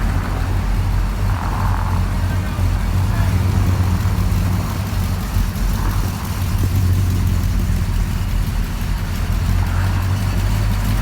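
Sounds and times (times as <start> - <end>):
car engine low rumble: 0.0 - 11.0.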